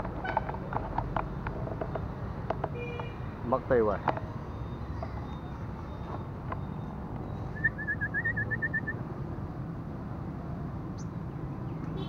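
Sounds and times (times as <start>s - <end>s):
road traffic rumble: 0.0s - 12.0s
bird trilling: 6.7s - 9.0s.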